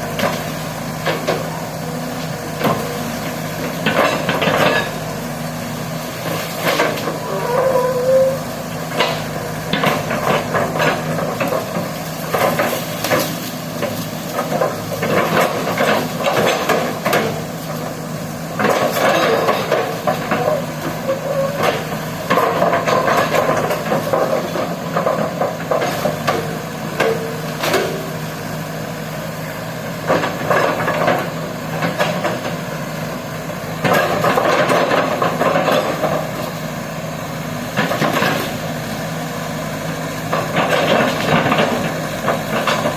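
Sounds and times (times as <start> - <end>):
excavator diesel engine running: 0.0 - 42.9
machine clanking and knocking: 3.6 - 5.0, 8.9 - 17.8, 18.5 - 28.2, 30.0 - 32.6, 33.8 - 36.5, 40.3 - 42.9.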